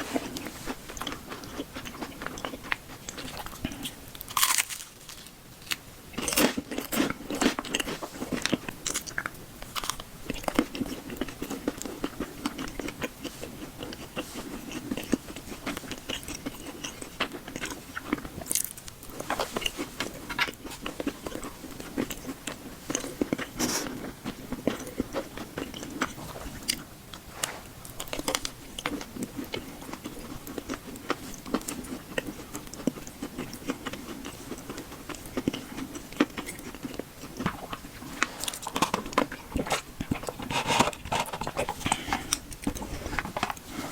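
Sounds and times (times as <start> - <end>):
person biting and chewing: 0.1 - 26.8.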